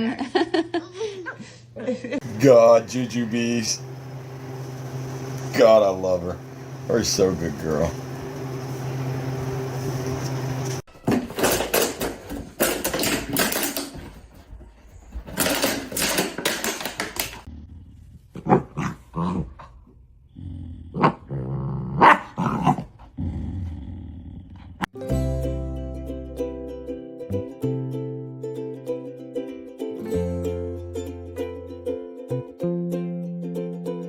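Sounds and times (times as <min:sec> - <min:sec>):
steady hum: 0:01.2 - 0:10.9
dog growling and barking: 0:17.5 - 0:24.9.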